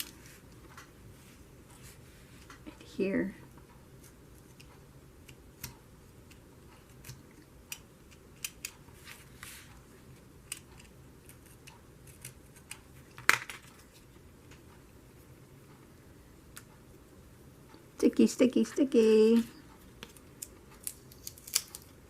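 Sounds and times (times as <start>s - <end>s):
scissors snipping paper: 10.4s - 12.8s, 20.0s - 21.9s.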